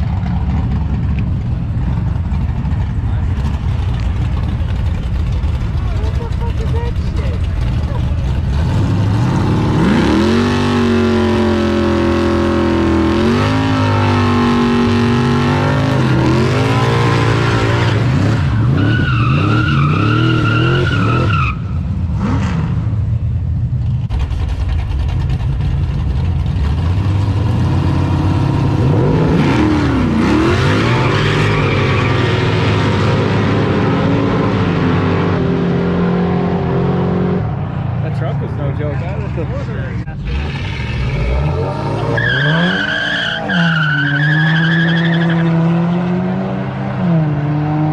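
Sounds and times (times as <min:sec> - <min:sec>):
car engines revving: 0:00.0 - 0:47.9
tyre squeal: 0:17.9 - 0:21.8, 0:40.2 - 0:45.6.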